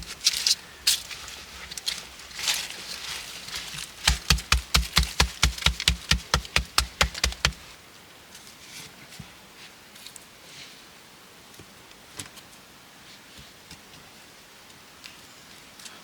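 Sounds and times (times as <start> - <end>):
rustling: 0.0 - 7.8
fast sharp knocks: 4.0 - 7.6.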